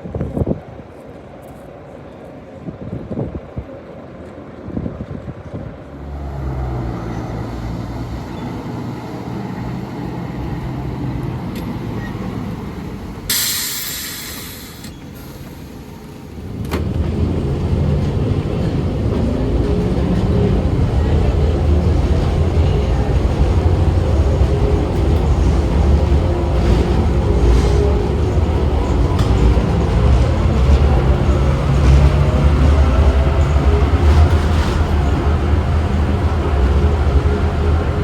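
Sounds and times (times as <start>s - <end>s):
electric tram motor hum: 0.1s - 38.0s
air release hiss: 13.3s - 15.8s.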